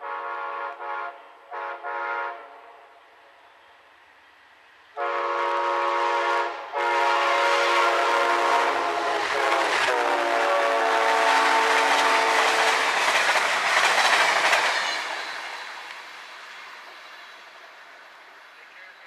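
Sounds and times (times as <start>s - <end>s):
train horn blasts: 0.0s - 2.9s, 5.0s - 12.9s
train cars rolling past: 3.0s - 19.0s.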